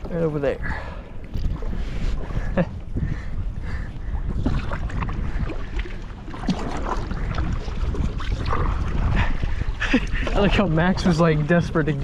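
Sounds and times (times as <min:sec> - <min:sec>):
wind on microphone: 0:00.0 - 0:12.0
paddle splashing in water: 0:04.3 - 0:12.0.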